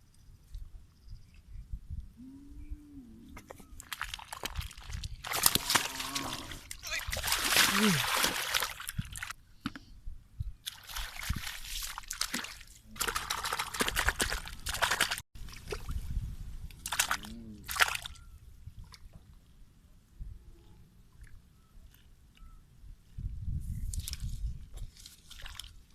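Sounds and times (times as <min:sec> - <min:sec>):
water pouring and sloshing: 0:03.6 - 0:09.4, 0:10.6 - 0:16.2, 0:16.8 - 0:19.4, 0:23.9 - 0:25.9.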